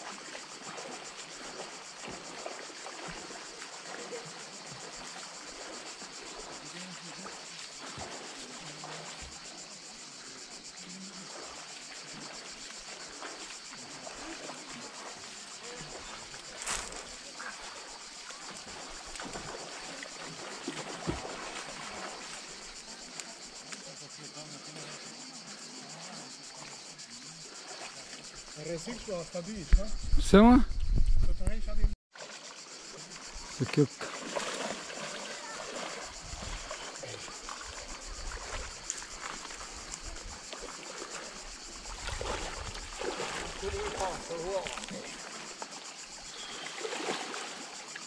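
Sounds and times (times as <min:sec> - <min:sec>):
flowing river hiss: 0:00.0 - 0:29.6, 0:32.2 - 0:48.0
high insect drone: 0:00.0 - 0:48.0
water lapping on pebbles: 0:11.1 - 0:23.2, 0:32.1 - 0:48.0.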